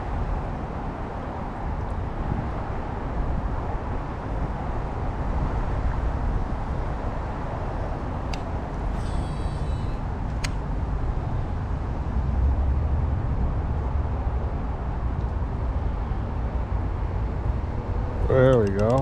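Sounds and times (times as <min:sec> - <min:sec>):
low outdoor rumble: 0:00.0 - 0:19.0
sharp clicks: 0:08.3 - 0:10.6, 0:18.5 - 0:19.0
high thin chirping: 0:09.0 - 0:10.0.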